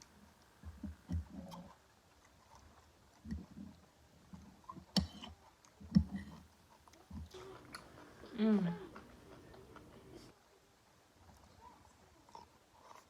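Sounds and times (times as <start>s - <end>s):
person chewing food: 0.4s - 10.3s.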